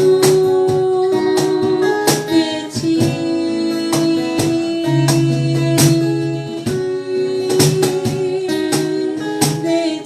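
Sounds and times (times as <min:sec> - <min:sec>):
person singing: 0:00.0 - 0:10.0
guitar strumming chords: 0:04.8 - 0:07.6.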